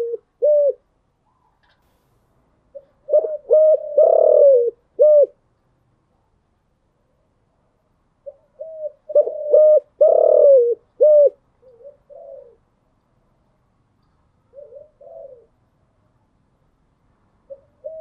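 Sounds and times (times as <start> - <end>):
dove cooing: 0.0 - 0.9, 2.7 - 5.4, 8.2 - 12.7, 14.5 - 15.6, 17.5 - 18.0.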